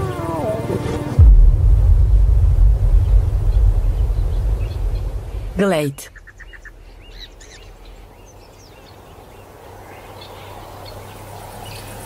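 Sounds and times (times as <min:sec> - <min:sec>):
bird chirps: 0:04.0 - 0:09.0.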